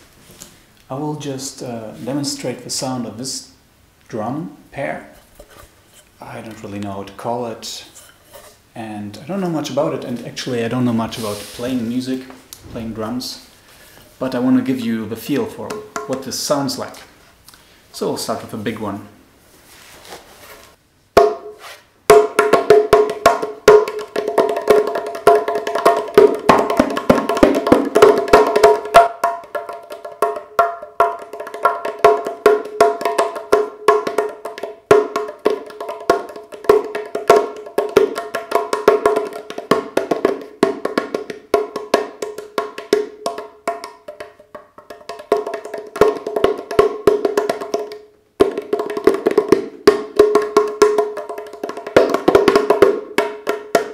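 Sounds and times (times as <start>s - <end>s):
clay hand drum finger taps: 22.1s - 53.9s.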